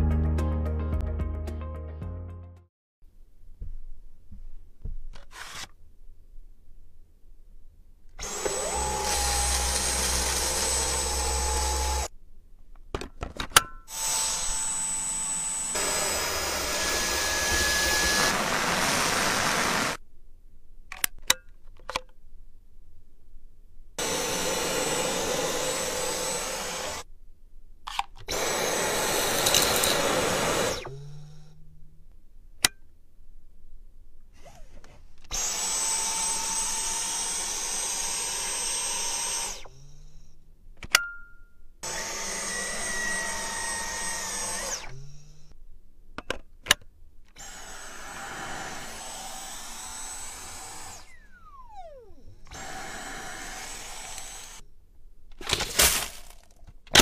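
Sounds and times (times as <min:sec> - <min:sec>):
vacuum cleaner motor running: 0:08.2 - 0:12.1, 0:13.9 - 0:20.0, 0:24.0 - 0:27.0, 0:28.3 - 0:31.4, 0:35.3 - 0:39.8, 0:41.8 - 0:45.4, 0:47.4 - 0:54.6.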